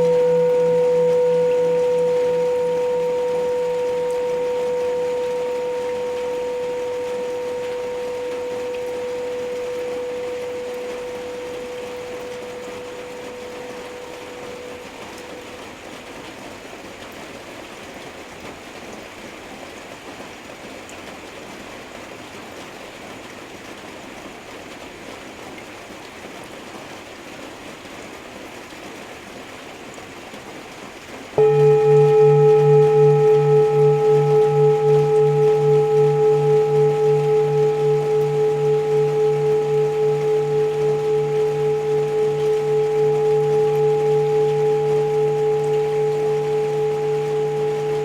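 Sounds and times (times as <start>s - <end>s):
singing bowl ringing: 0.0s - 16.4s, 31.4s - 48.0s.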